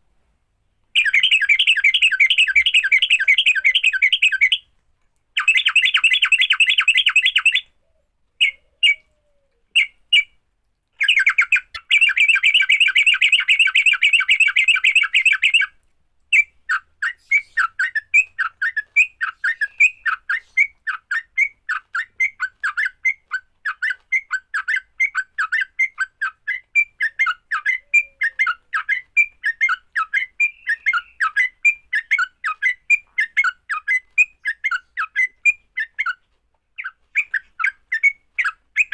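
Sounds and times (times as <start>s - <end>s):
bulbuls harsh chattering: 1.0s - 4.6s
bird sharp notes: 1.0s - 4.7s.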